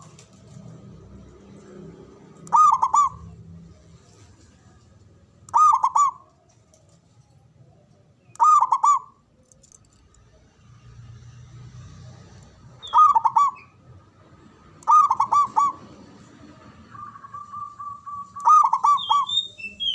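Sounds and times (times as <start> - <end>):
dove cooing song: 2.1 - 3.8, 5.4 - 9.6, 12.8 - 13.8, 14.8 - 19.9.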